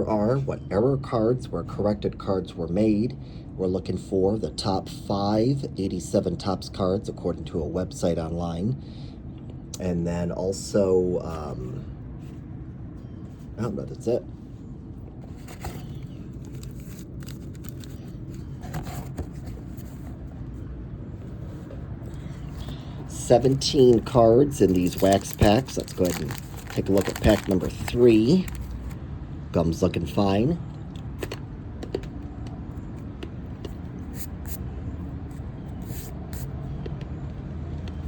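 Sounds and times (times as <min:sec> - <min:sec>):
low background hum: 0:00.0 - 0:38.0
wax paper wrapper crinkling: 0:15.4 - 0:18.5, 0:22.5 - 0:29.0.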